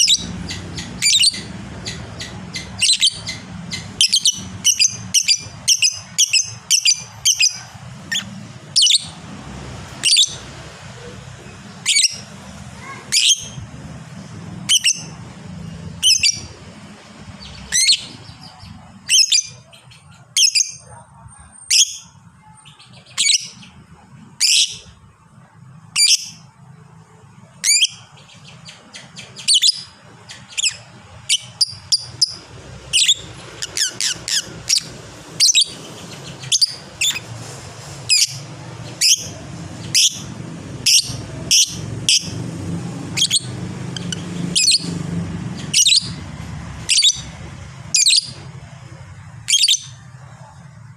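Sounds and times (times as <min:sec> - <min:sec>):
lovebird shrill chirps: 0:00.0 - 0:09.1, 0:10.0 - 0:10.4, 0:14.7 - 0:15.1, 0:16.0 - 0:16.5, 0:19.0 - 0:19.6, 0:20.4 - 0:20.8, 0:26.0 - 0:26.4, 0:27.6 - 0:37.2, 0:38.1 - 0:42.3, 0:43.1 - 0:44.9, 0:45.6 - 0:46.2, 0:46.9 - 0:47.3, 0:47.9 - 0:48.4, 0:49.5 - 0:50.0.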